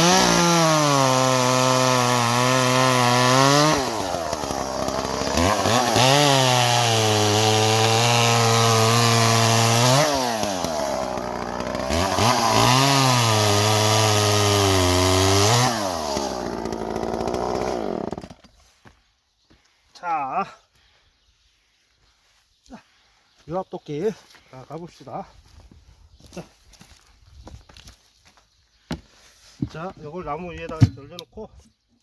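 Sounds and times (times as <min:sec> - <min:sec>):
chainsaw cutting logs: 0:00.0 - 0:18.6.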